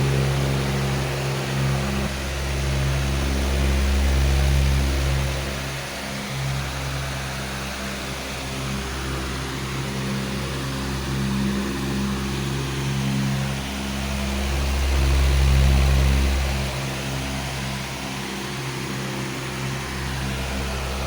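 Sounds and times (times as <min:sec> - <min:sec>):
electric fan running: 0:00.0 - 0:21.0.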